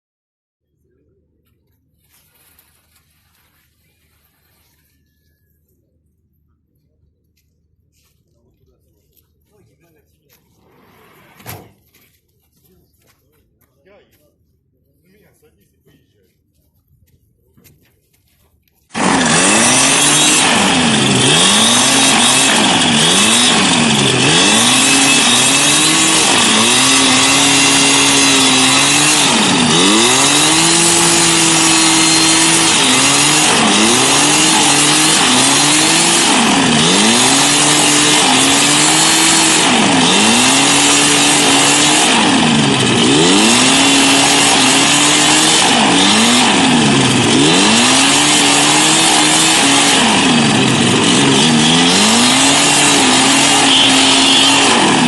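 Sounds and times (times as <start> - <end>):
wind machine engine revving: 18.9 - 55.0.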